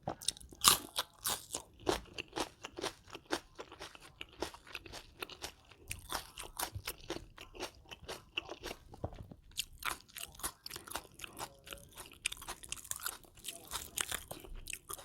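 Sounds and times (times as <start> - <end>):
mouth chewing crunchy food: 0.0 - 15.0.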